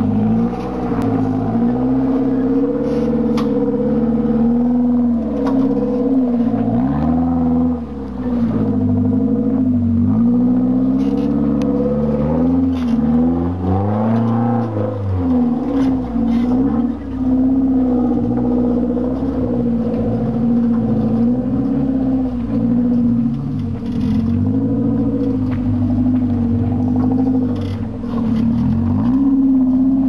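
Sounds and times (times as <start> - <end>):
off-road engine revving: 0.0 - 30.0
knocks and rattles over bumps: 14.0 - 30.0.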